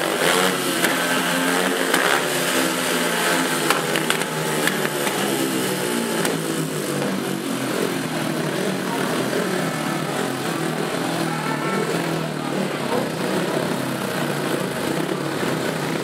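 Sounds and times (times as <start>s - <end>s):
motorcycle engines revving: 0.0s - 16.0s.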